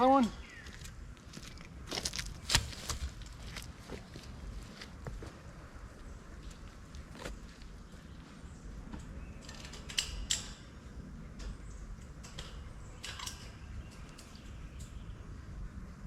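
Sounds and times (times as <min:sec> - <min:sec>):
wire fencing clinking: 0:09.4 - 0:10.8, 0:11.4 - 0:15.0.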